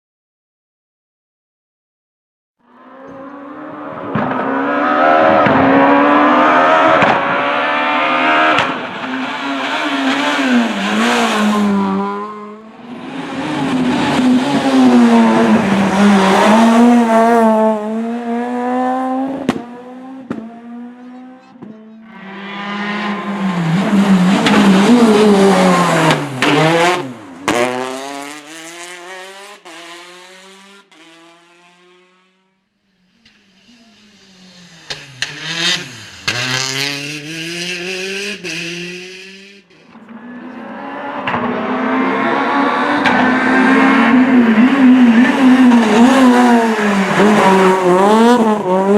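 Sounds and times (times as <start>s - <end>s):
rally cars passing at speed: 2.7s - 48.9s.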